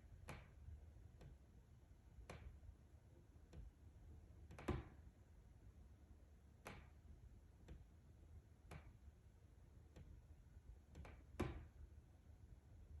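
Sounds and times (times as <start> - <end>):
faint clicks inside wall: 0.1 - 2.7, 3.4 - 5.1, 6.5 - 11.9.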